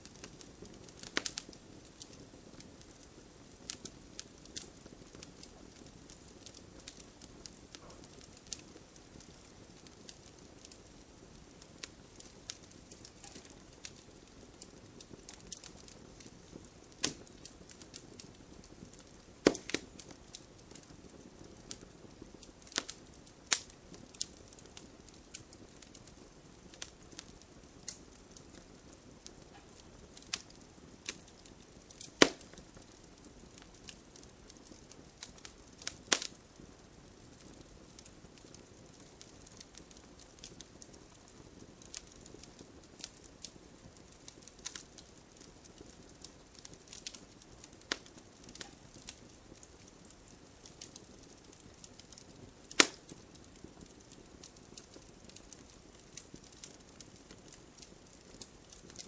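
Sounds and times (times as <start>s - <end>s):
bonfire crackling and popping: 0.0s - 59.0s.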